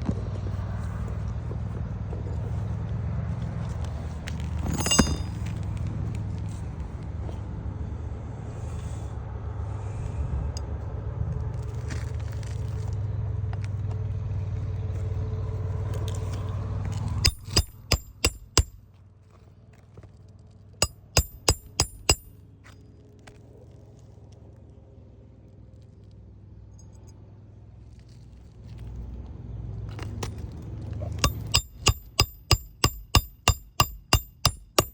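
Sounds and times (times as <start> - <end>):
hammer striking nails: 17.2 - 18.8, 20.8 - 22.3, 31.2 - 34.9.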